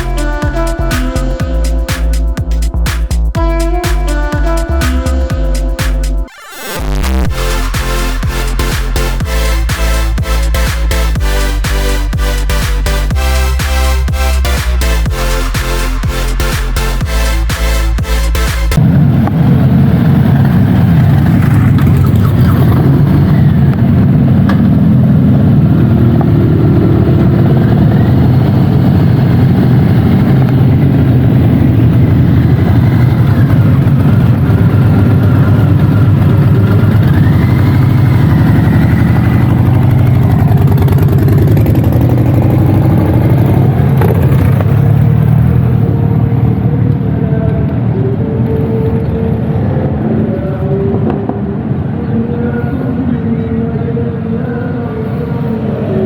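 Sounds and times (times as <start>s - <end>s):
loud car engine running: 0.0s - 48.8s.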